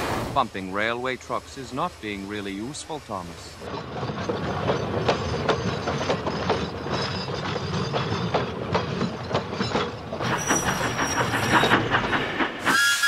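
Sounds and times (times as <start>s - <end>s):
steam hissing: 0.0s - 3.7s, 10.2s - 13.0s
train wheels rolling: 1.4s - 13.0s
buffers and couplings clanking: 3.6s - 12.7s.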